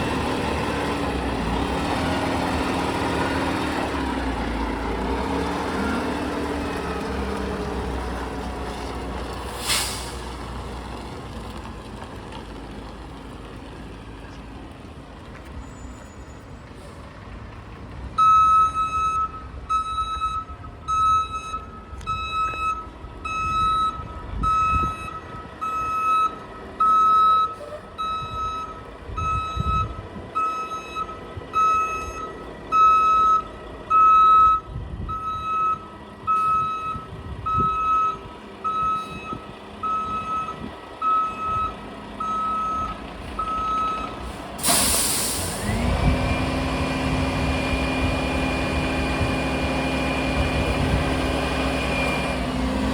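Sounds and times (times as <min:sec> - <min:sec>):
diesel engine rumble: 0:00.0 - 0:52.9
air brakes hissing: 0:09.5 - 0:10.3, 0:44.2 - 0:46.0
reversing alarm beeping: 0:18.2 - 0:46.6.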